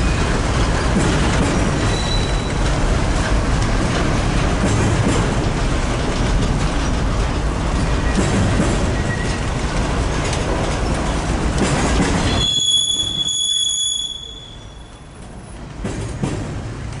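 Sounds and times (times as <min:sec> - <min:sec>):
train wheels rumbling on rail: 0:00.0 - 0:17.0
high wheel squeal: 0:01.8 - 0:02.7, 0:12.2 - 0:15.2.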